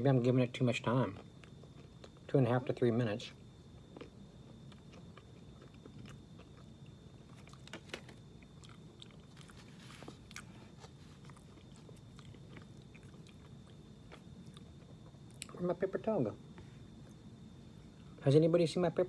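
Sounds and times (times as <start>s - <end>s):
faint chewing and biting: 0.8s - 2.4s, 3.3s - 15.6s.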